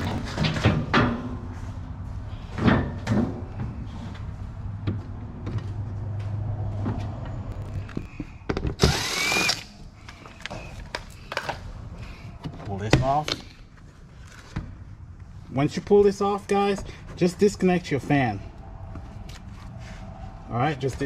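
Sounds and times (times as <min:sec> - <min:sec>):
cordless drill whirring: 0:08.8 - 0:09.7.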